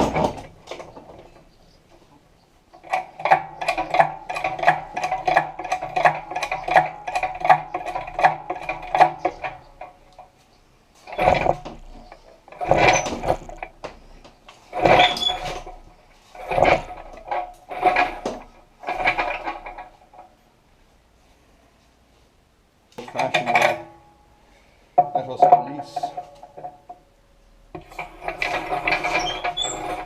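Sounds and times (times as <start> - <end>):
clunking and scraping: 0.0 - 20.4, 23.0 - 24.1, 25.0 - 27.1, 27.7 - 30.0
lifting mechanism ratcheting clicks: 2.7 - 10.3, 11.0 - 13.9.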